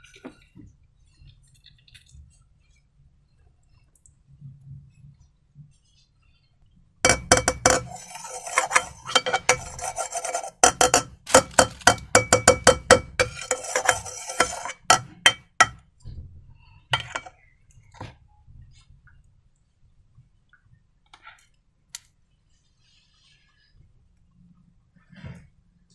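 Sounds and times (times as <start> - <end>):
scraping and rubbing: 7.1 - 15.8, 17.0 - 17.3.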